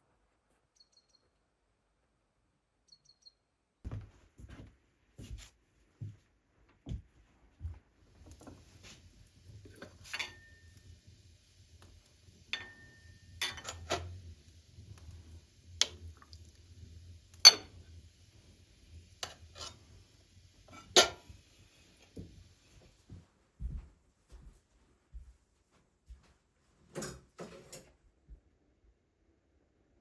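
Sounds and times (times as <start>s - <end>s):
cutlery and dishes clinking: 9.8s - 10.7s, 12.6s - 14.1s, 17.5s - 17.8s, 19.2s - 19.8s, 20.7s - 21.3s.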